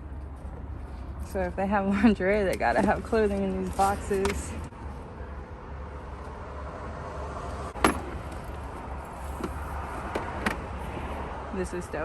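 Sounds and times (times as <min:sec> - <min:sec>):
rummaging through clothes: 0:02.3 - 0:04.7.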